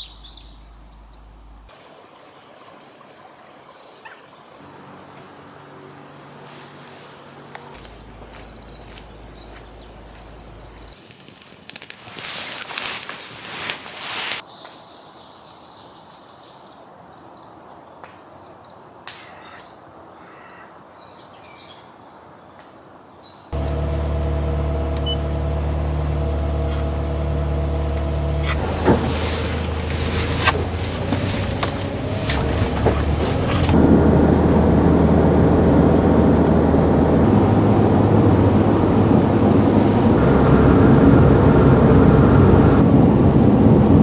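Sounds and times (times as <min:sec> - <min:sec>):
high bird chirps: 0:00.0 - 0:01.3
engine-like drone: 0:07.4 - 0:11.0, 0:23.6 - 0:44.0.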